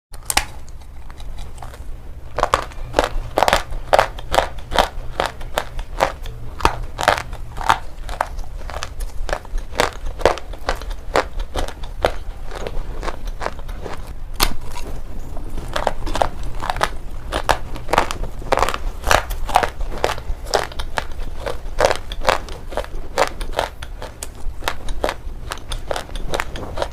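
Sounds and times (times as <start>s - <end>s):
low steady hum: 0.1s - 26.9s
stone crunched between teeth: 0.2s - 1.8s.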